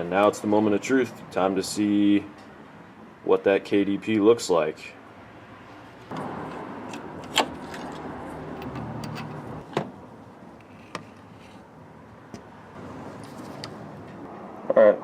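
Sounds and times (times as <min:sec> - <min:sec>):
rustling and scraping: 0:10.6 - 0:11.7, 0:13.0 - 0:14.2.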